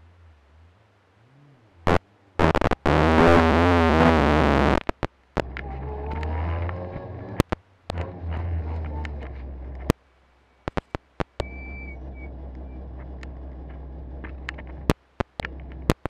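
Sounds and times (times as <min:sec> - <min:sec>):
loud overloaded rumbling: 0:11.4 - 0:15.9
car engine idling: 0:11.4 - 0:16.0.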